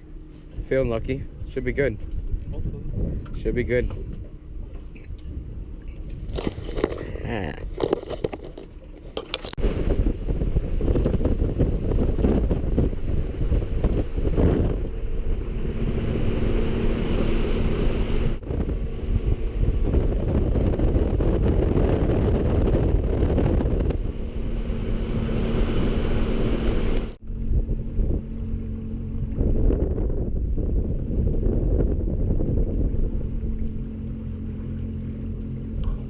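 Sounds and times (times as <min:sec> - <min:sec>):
wind buffeting microphone: 0:00.0 - 0:08.0, 0:09.5 - 0:36.0
outboard engine hum: 0:00.0 - 0:36.0
water rushing past hull: 0:09.6 - 0:36.0.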